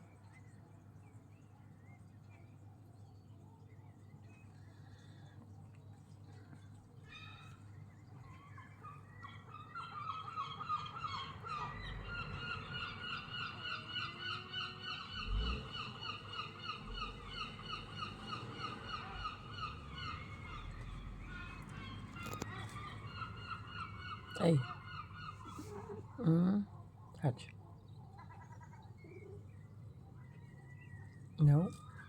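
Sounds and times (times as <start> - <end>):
seagulls calling: 8.2 - 26.7.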